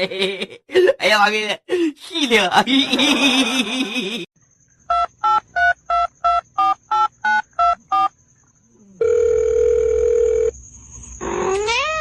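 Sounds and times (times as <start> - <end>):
cat meowing: 11.4 - 12.0.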